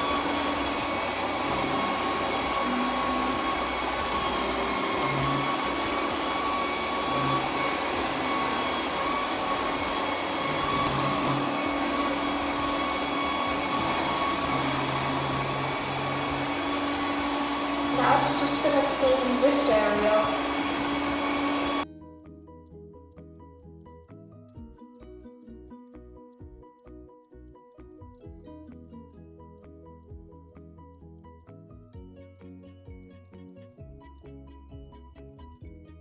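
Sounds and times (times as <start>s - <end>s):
robot vacuum whirring: 0.0s - 21.8s.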